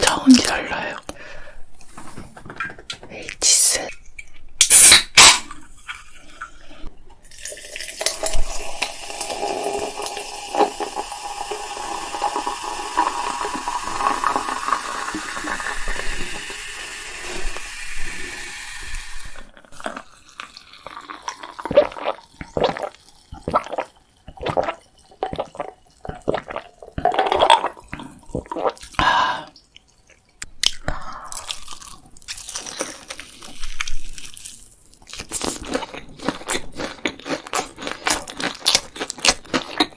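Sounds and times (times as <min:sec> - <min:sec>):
wet sticky chewing: 0:29.6 - 0:39.9.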